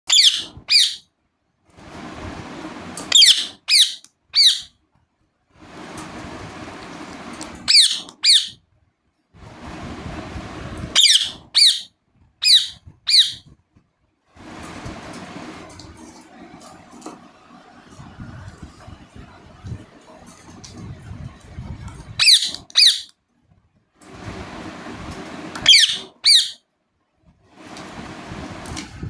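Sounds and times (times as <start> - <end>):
parakeet shrill chirps: 0.1 - 1.0, 3.1 - 4.7, 7.7 - 8.6, 10.9 - 13.4, 22.2 - 23.1, 25.6 - 26.6
steady rushing noise: 1.8 - 3.1, 5.6 - 7.7, 9.4 - 11.5, 14.3 - 22.2, 24.0 - 26.1, 27.4 - 29.0.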